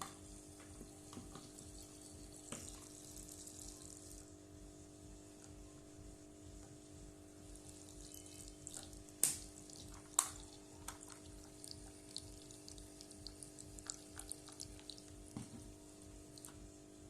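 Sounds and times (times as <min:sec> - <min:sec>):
water splashing and dripping: 0:08.4 - 0:15.5.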